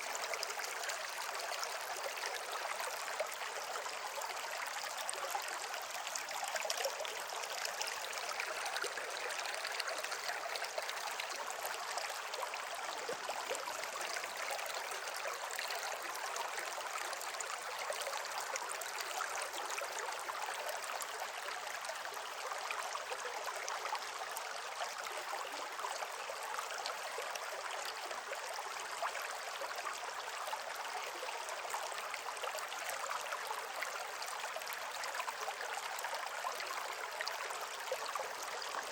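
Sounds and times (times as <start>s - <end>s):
water flowing over rocks: 0.0s - 38.9s.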